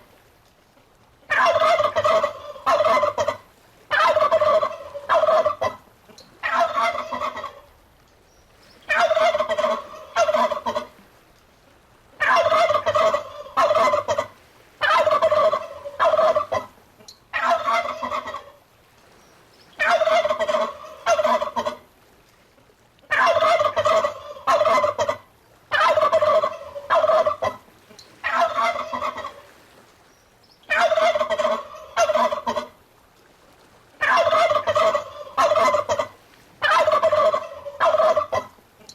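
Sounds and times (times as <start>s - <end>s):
turkey gobbling: 1.3s - 5.8s, 6.4s - 7.7s, 8.9s - 10.9s, 12.2s - 18.6s, 19.8s - 21.8s, 23.1s - 27.6s, 28.2s - 29.5s, 30.7s - 32.8s, 34.0s - 38.5s.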